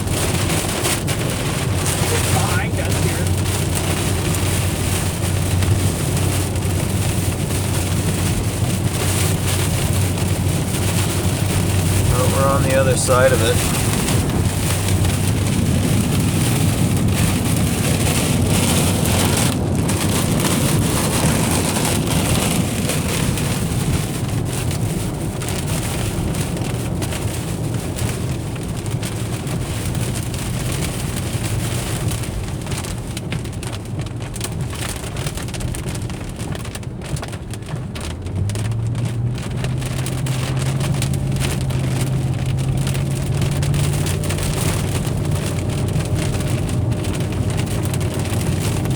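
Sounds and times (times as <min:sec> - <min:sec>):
rain pattering on a car: 0:00.0 - 0:48.9
road and engine noise: 0:00.0 - 0:48.9.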